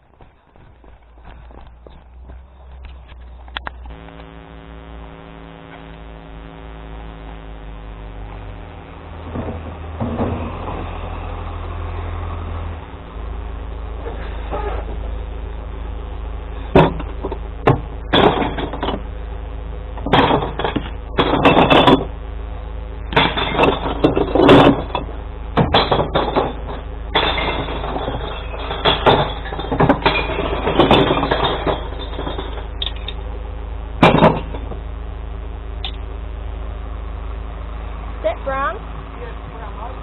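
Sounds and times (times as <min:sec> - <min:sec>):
truck engine idling: 0:00.0 - 0:04.0, 0:04.9 - 0:40.0
glass bottles crashing and clinking: 0:18.1 - 0:19.0, 0:20.1 - 0:22.1, 0:23.2 - 0:33.2, 0:34.0 - 0:34.7.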